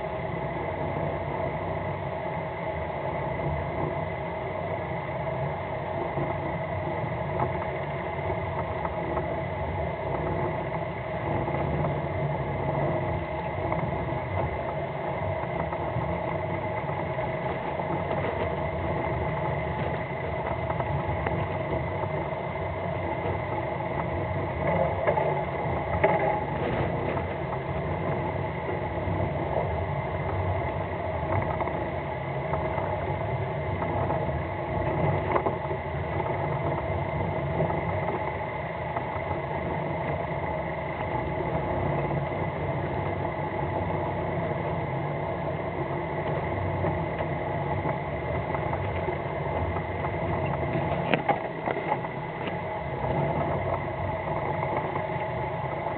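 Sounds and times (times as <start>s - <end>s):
boat engine humming: 0.0s - 55.9s.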